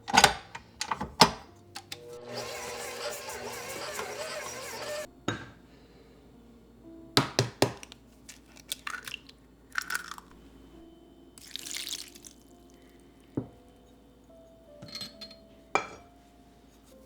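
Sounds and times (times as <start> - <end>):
objects knocking and clicking: 7.2 - 9.2.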